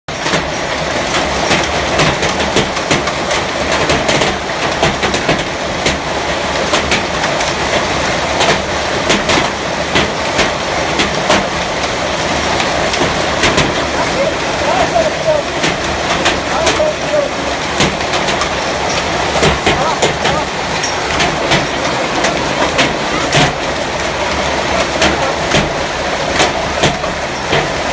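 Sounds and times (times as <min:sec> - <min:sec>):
hail and rain falling: 0:00.1 - 0:27.9
hailstones clicking: 0:00.1 - 0:27.9.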